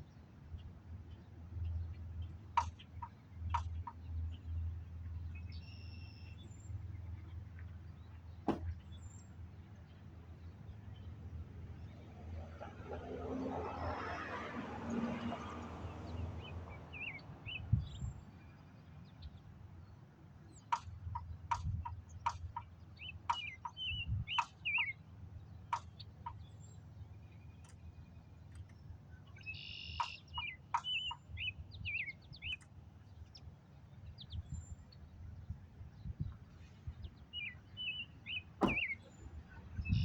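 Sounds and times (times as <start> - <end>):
small birds chirping: 16.1 - 40.0.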